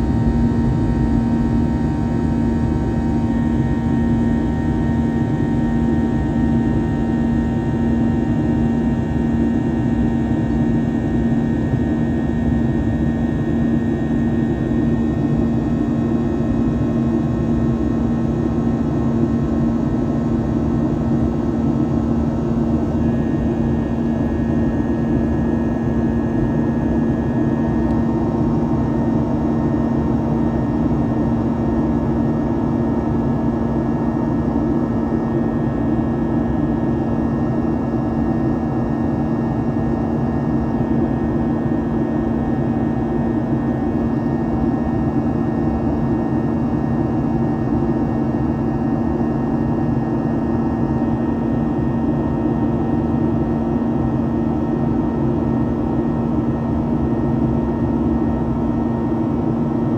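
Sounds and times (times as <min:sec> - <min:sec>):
airliner cabin engine drone: 0:00.0 - 0:59.9.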